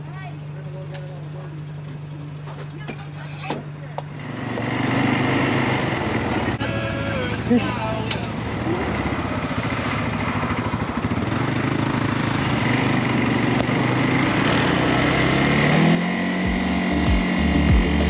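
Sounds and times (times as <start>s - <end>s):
atv engine running: 0.0s - 18.0s
music with thumping beat: 16.1s - 18.0s.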